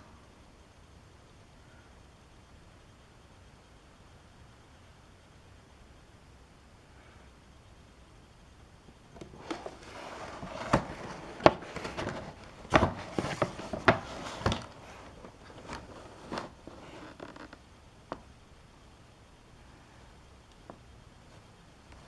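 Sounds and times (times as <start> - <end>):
cardboard box scraping and rustling: 9.2 - 17.5.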